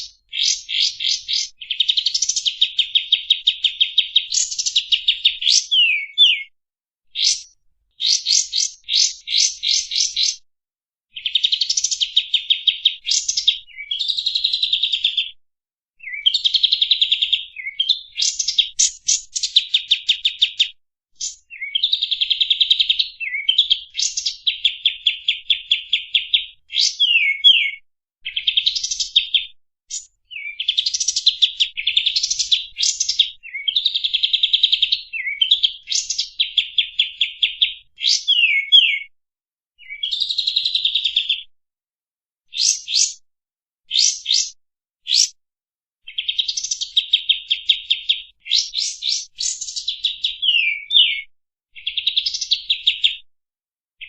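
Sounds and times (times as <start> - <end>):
songbird trilling: 0.0 - 6.5, 7.2 - 10.4, 21.2 - 31.2, 35.2 - 39.1, 42.5 - 43.2, 43.9 - 44.5, 45.1 - 45.3, 47.6 - 51.2.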